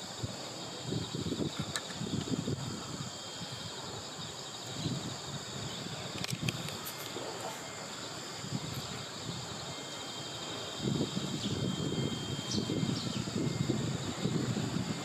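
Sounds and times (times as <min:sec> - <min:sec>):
insects trilling: 0:00.0 - 0:15.0
sharp clicks: 0:06.1 - 0:07.2.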